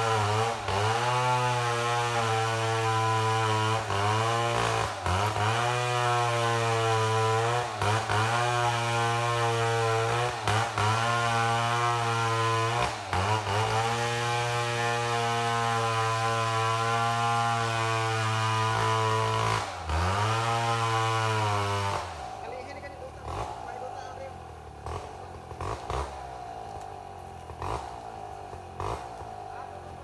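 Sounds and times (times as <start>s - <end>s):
chainsaw cutting log: 0.0s - 30.0s.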